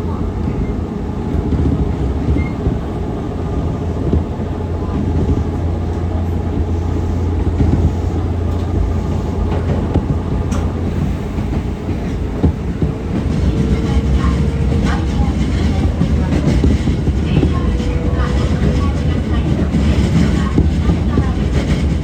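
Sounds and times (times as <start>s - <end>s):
train rumble: 0.0s - 22.0s.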